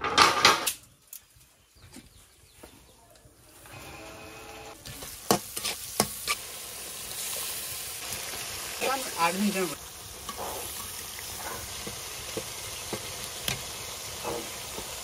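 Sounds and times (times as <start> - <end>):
food sizzling in hot oil: 4.7 - 15.0.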